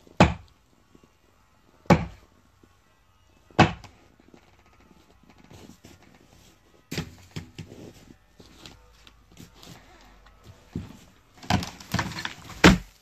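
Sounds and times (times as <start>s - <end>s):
axe chopping tree trunk: 0.1s - 0.5s, 1.9s - 2.2s, 3.6s - 3.9s, 11.4s - 12.9s
wood knocking and cracking: 0.1s - 0.5s, 1.9s - 2.3s, 3.6s - 5.5s, 10.8s - 13.0s.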